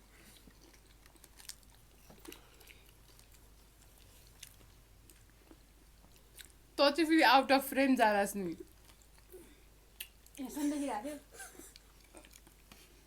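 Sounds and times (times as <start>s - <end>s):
close-up chewing: 0.0s - 6.6s, 8.6s - 10.4s, 11.6s - 13.0s.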